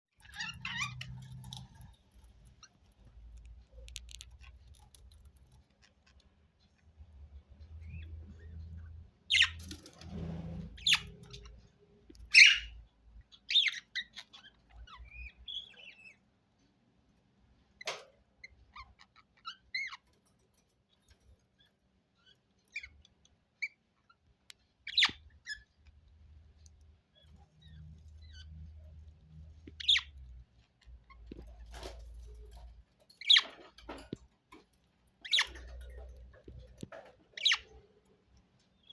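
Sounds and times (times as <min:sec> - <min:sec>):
small clicks and taps: 0:01.4 - 0:06.9
budgerigars chirping: 0:09.3 - 0:09.6, 0:12.3 - 0:16.2, 0:29.8 - 0:30.2, 0:35.2 - 0:35.8.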